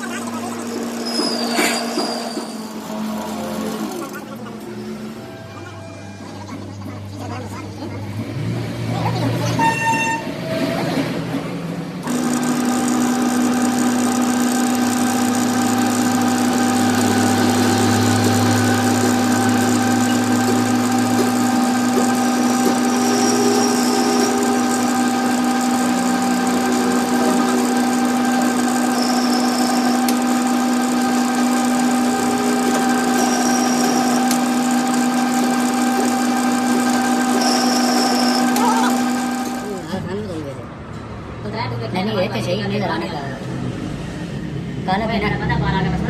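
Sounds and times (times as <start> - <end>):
electric machine motor humming: 0.0 - 7.2, 11.9 - 40.1.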